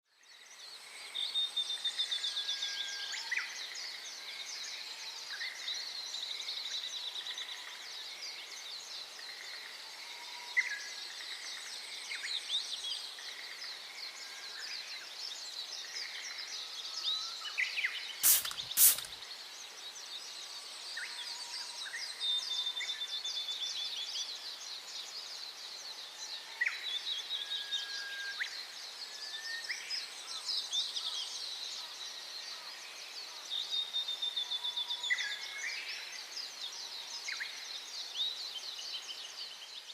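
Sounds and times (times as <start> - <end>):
faint steady hiss: 11.7 - 39.9
sharp clicks: 18.2 - 19.2.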